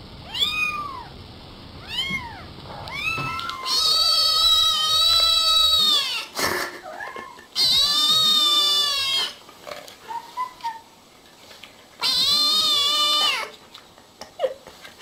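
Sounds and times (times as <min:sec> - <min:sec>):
cat meowing: 0:00.2 - 0:01.1, 0:01.8 - 0:06.2, 0:12.0 - 0:13.5.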